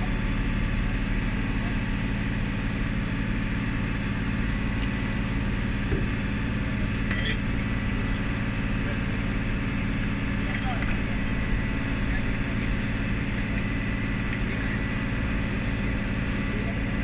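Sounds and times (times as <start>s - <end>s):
bus diesel engine running: 0.0s - 17.0s
light metallic clinks: 7.1s - 7.4s.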